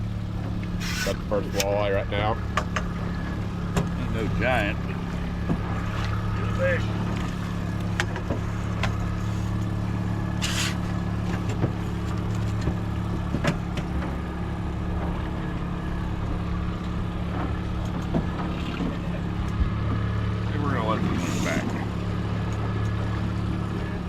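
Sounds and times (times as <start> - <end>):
boat engine droning: 0.0 - 24.0
sharp clicks and knocks: 2.5 - 2.9, 7.8 - 9.0.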